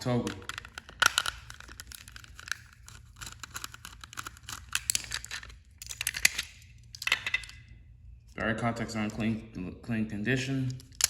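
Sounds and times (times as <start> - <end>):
plastic toy clicks and rattles: 0.0 - 7.6.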